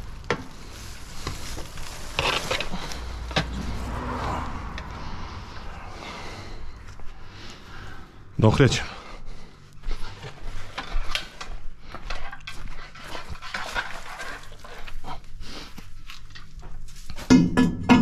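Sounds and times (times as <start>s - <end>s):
metallic scraping and clattering: 0.6s - 6.7s.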